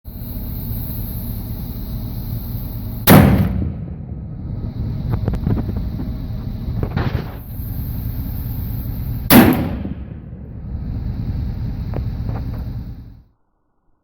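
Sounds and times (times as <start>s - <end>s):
steady low rumble: 0.0s - 13.4s
cannon boom: 3.0s - 7.5s, 9.2s - 10.8s.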